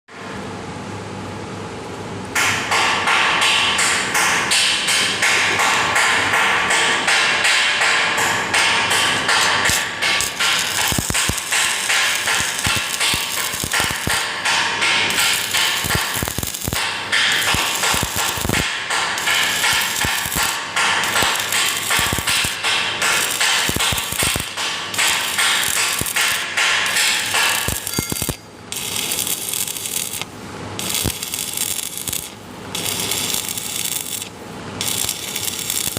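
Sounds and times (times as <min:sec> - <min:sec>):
welding arc crackling: 0:05.3 - 0:35.9.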